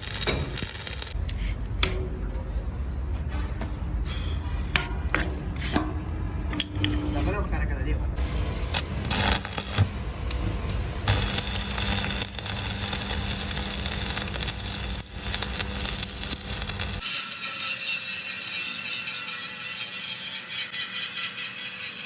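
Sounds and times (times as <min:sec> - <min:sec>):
tool grinding steel: 0:08.2 - 0:22.0.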